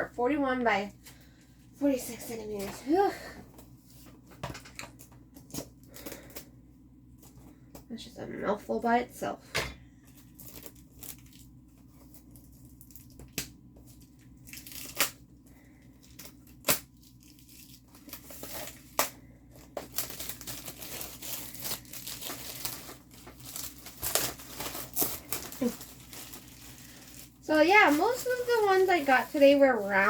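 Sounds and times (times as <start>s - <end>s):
packaging crinkling and rustling: 10.0s - 30.0s.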